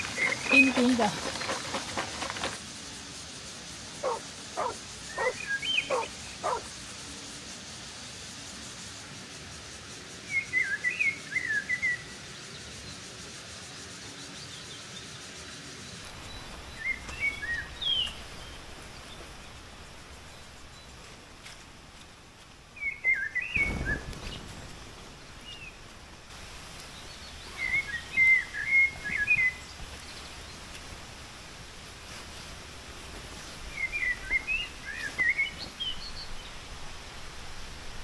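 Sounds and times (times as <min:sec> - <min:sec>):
birds chirping: 0:00.0 - 0:02.6, 0:04.0 - 0:07.2
steady background hiss: 0:00.0 - 0:38.0
short sharp calls: 0:04.0 - 0:06.6.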